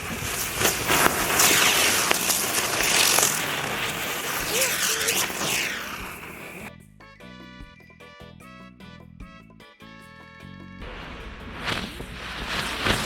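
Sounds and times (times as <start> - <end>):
fireworks hissing and crackling: 0.0 - 6.7, 10.8 - 13.0
firework whistle: 0.0 - 7.8, 10.8 - 13.0.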